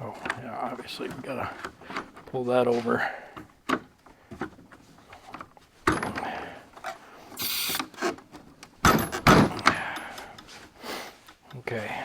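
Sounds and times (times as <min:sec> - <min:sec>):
metal parts clunking and scraping: 0:03.7 - 0:07.0, 0:07.7 - 0:10.6
short hiss: 0:07.4 - 0:07.9.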